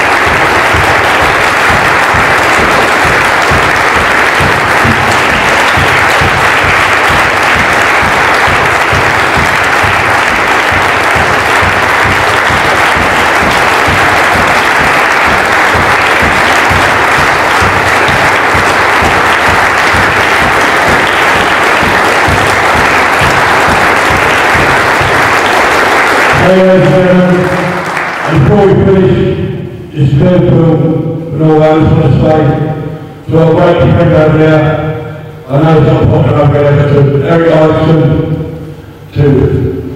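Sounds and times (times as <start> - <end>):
crowd applauding: 0.0 - 28.9.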